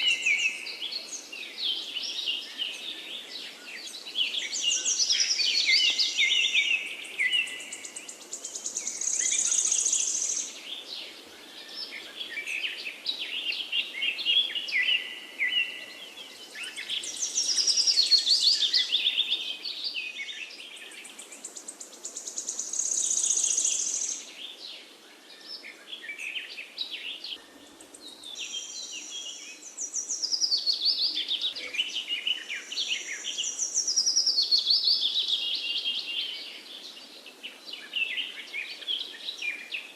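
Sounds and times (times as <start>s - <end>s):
faint outdoor hiss: 0.0s - 39.9s
songbirds chirping and warbling: 0.0s - 39.9s.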